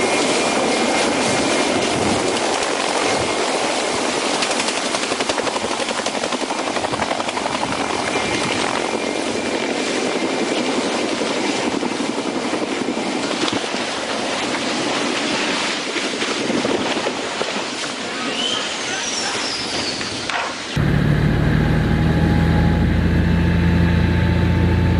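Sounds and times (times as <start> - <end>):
aircraft droning: 20.6 - 24.9.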